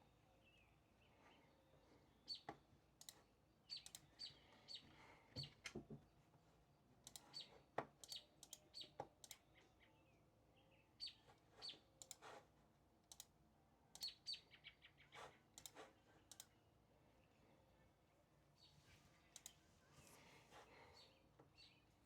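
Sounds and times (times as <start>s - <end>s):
small birds chirping: 0.0s - 5.6s, 7.0s - 12.2s, 13.9s - 17.5s, 18.5s - 22.0s
soft clicks: 2.4s - 4.1s, 7.0s - 9.4s, 12.0s - 12.3s, 13.1s - 14.2s, 15.6s - 16.6s, 19.3s - 19.6s.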